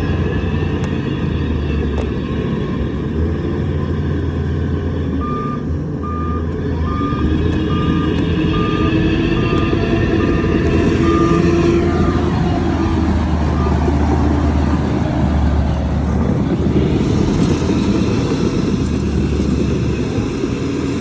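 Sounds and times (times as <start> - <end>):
diesel machinery engine running: 0.0 - 21.0
reversing alarm beeping: 5.2 - 14.6.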